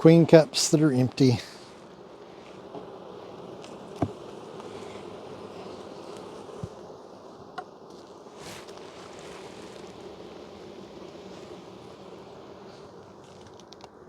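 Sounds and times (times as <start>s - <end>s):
honey bees buzzing: 0.0s - 14.0s.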